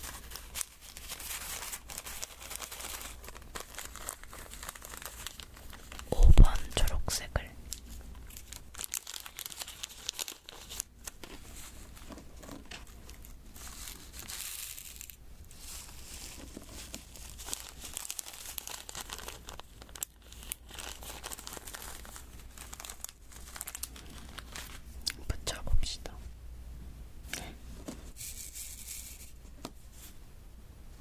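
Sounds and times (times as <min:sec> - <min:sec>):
plastic crinkling: 0:00.0 - 0:07.0, 0:07.7 - 0:25.2.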